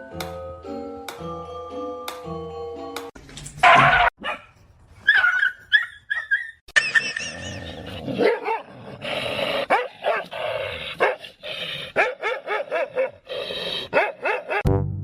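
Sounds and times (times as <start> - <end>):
dog barking: 3.6 - 4.5, 5.1 - 6.4, 8.2 - 8.7, 9.7 - 10.3, 11.0 - 11.2, 12.0 - 13.2, 13.9 - 14.6
brass music: 14.6 - 15.0.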